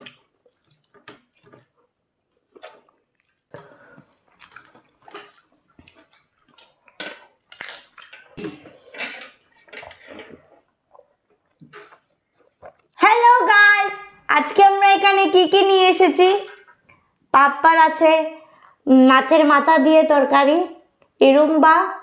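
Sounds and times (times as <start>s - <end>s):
clinks of dishes and food: 7.0s - 10.4s.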